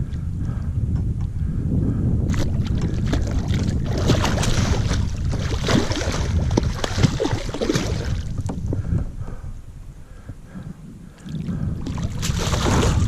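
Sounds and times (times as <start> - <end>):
wind buffeting microphone: 0.0 - 13.0
water splashing around canoe: 2.3 - 8.6, 11.3 - 13.0.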